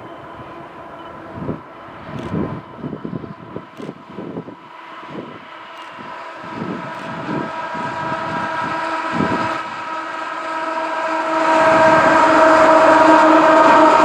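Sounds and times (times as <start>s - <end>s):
locomotive horn chord: 7.6s - 14.0s.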